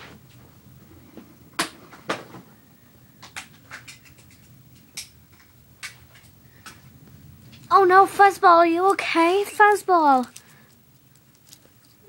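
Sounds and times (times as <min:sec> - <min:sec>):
faint room hum: 0:00.0 - 0:12.0
plastic toys clicking and knocking: 0:03.2 - 0:05.2, 0:08.8 - 0:12.0.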